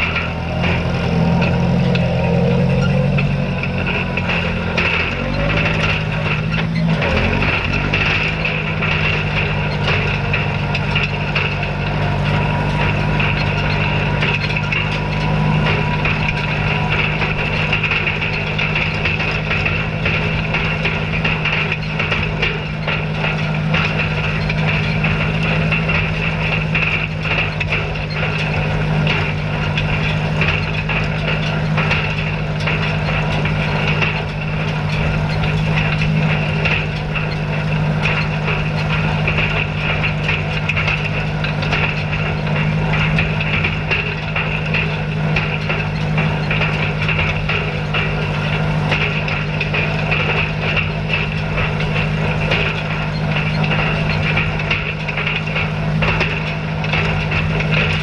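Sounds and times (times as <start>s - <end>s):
hay rake clattering: 0.0s - 58.0s
tractor engine running: 0.0s - 58.0s.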